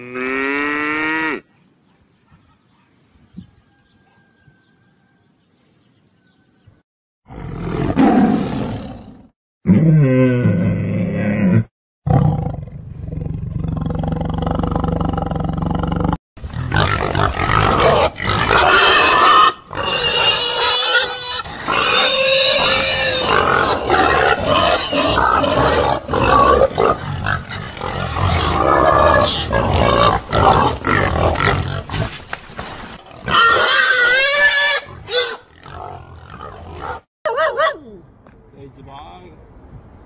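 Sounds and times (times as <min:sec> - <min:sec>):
pigs grunting and squealing: 0:07.3 - 0:32.2, 0:32.9 - 0:37.1.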